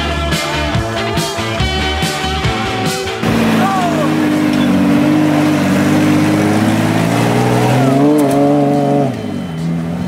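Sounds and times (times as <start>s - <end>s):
engine pulling under throttle: 3.2s - 10.0s.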